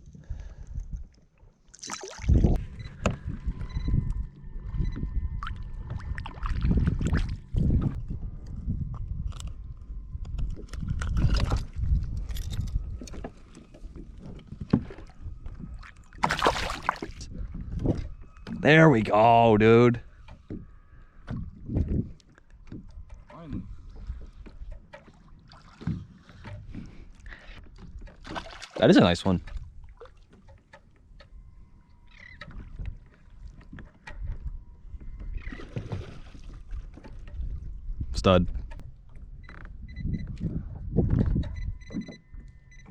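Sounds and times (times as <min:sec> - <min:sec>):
water splash: 0:01.7 - 0:02.6, 0:16.2 - 0:17.2, 0:28.2 - 0:29.1
low rumble: 0:02.3 - 0:20.2
kayak handling noise: 0:09.2 - 0:17.2
knocks and thuds on kayak: 0:40.8 - 0:42.1.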